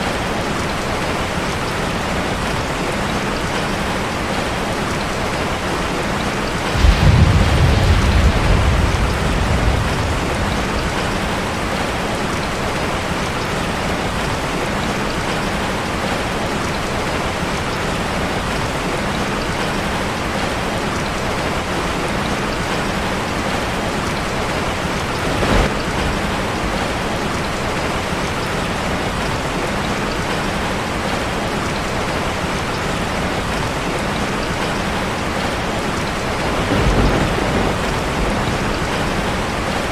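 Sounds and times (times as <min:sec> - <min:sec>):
heavy rain on a metal roof: 0:00.0 - 0:39.9
thunder rumble: 0:06.5 - 0:14.3, 0:24.1 - 0:28.0, 0:36.1 - 0:39.9.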